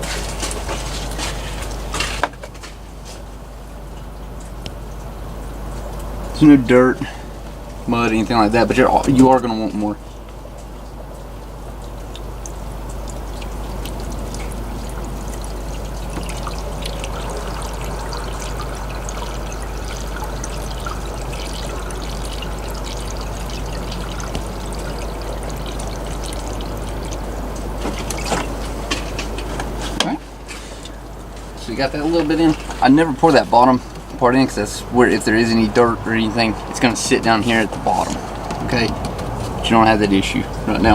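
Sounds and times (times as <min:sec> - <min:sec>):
diesel pouring from a jug: 0:00.0 - 0:40.9.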